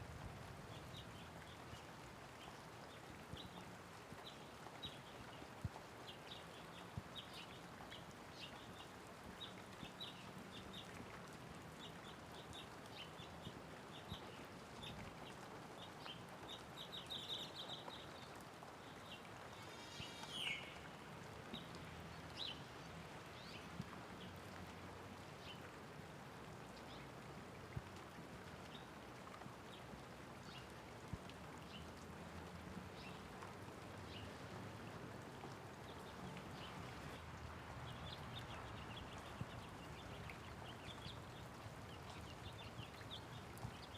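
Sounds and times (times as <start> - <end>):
light rain falling: 0.0 - 43.9
birds chirping: 18.9 - 21.7.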